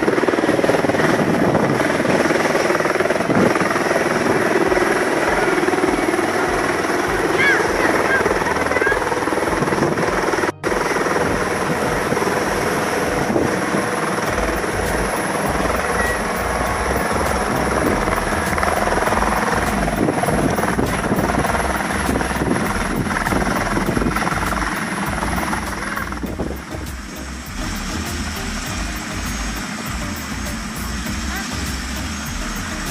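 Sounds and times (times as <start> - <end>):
helicopter rotor and turbine: 0.0 - 32.9.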